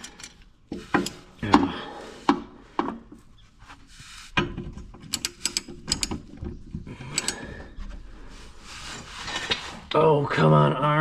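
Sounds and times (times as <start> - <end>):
metallic clicks and taps: 5.0 - 6.4
tool scraping metal: 7.2 - 9.9.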